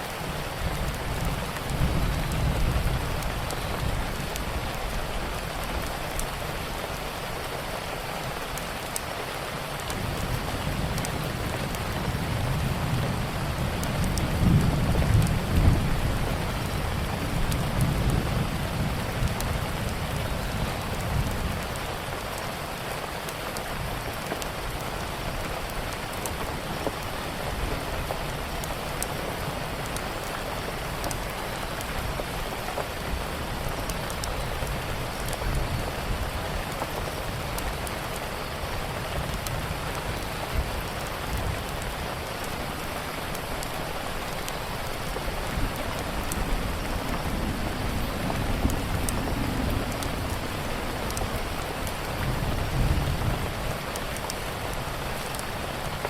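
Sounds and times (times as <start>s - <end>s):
steady rain: 0.0s - 56.0s
wood fire crackling: 0.1s - 56.0s
thunder rumbling: 0.3s - 6.3s, 9.9s - 21.9s, 38.5s - 56.0s.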